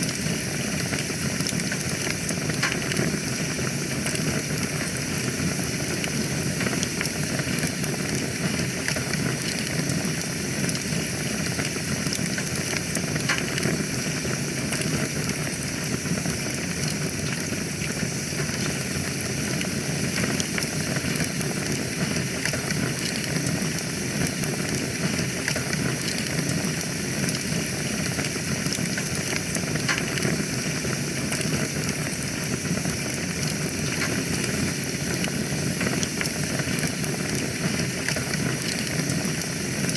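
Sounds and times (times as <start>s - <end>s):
wood fire hissing and crackling: 0.0s - 39.9s.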